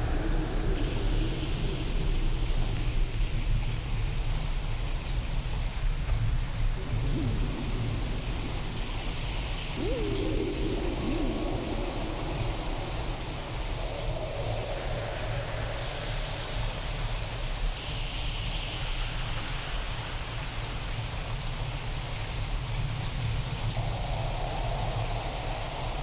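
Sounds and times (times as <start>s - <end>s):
constant low rumble: 0.0s - 17.7s
processed rain: 0.0s - 18.4s, 22.8s - 26.0s.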